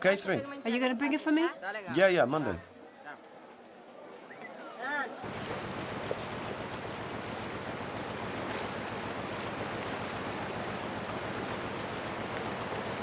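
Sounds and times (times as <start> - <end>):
steady rushing noise: 5.2 - 13.0.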